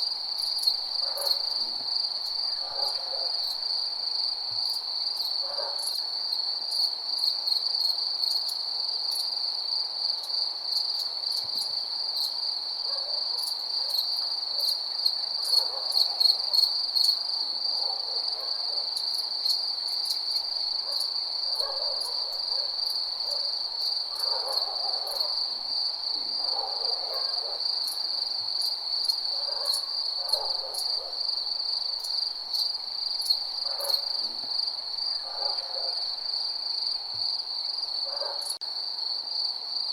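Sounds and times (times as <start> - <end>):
crickets trilling: 0.0 - 39.9
lower insect calls: 13.1 - 38.6.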